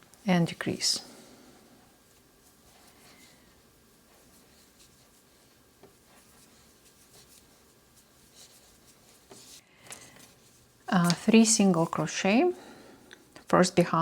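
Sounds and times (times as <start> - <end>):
yarn rustling through crochet hook: 2.0 - 12.5.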